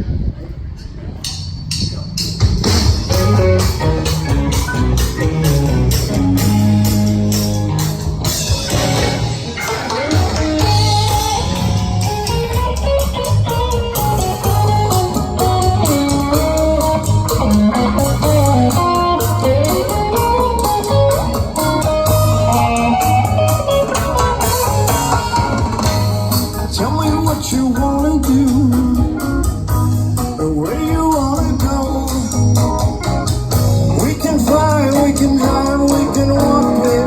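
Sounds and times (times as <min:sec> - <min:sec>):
steady drums: 0:00.0 - 0:37.0
bass line: 0:01.6 - 0:37.0
guitar picking notes: 0:02.6 - 0:37.0.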